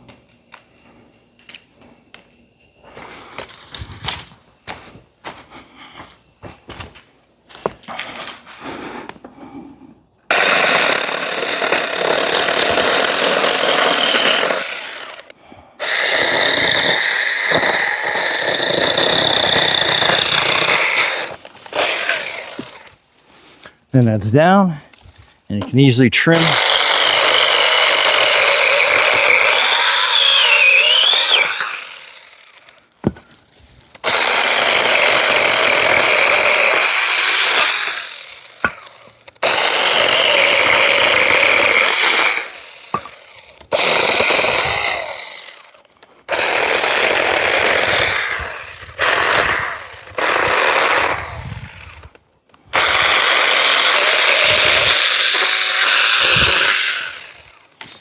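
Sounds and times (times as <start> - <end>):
electric chainsaw running in bursts: 10.3 - 22.9, 26.4 - 32.8, 34.0 - 52.1, 52.7 - 57.8
motor and chain winding down: 10.3 - 22.9, 26.4 - 32.8, 34.0 - 52.1, 52.8 - 57.7.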